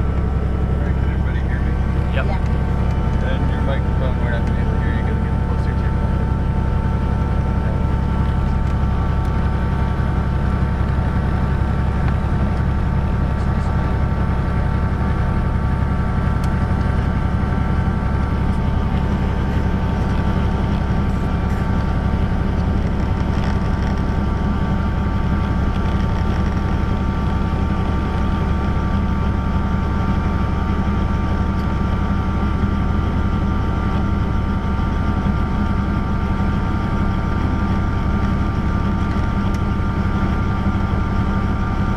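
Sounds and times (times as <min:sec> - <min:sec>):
high whine: 0:00.0 - 0:31.8
helicopter rotor drone: 0:00.0 - 0:41.9.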